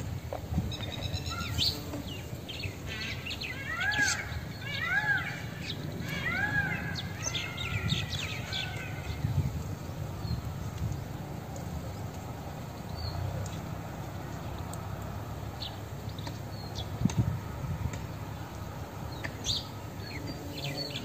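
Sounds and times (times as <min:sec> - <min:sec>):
bird call rising and falling: 0:00.7 - 0:09.4.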